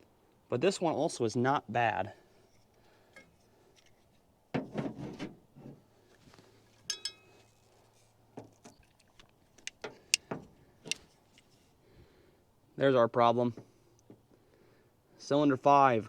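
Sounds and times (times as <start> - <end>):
metal tools clicking and knocking: 6.9 - 7.4, 8.6 - 11.6
ringing metal clink: 6.9 - 7.4.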